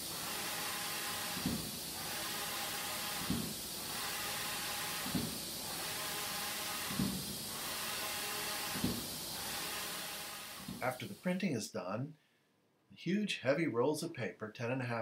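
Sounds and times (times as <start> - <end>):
printer carriage sweeping: 0.0 - 10.9
steady hiss: 0.0 - 11.8.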